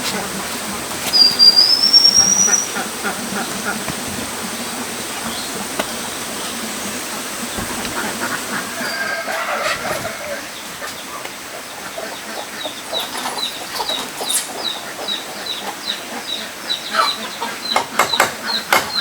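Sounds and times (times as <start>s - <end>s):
flowing water rushing: 0.0s - 16.4s
thin high whistle: 1.1s - 2.8s.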